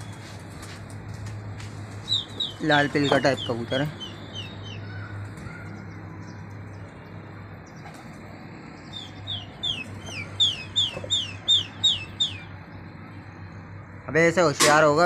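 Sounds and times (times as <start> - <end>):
low background hum: 0.0 - 15.0
bird calling in falling notes: 2.0 - 5.8, 9.0 - 12.5.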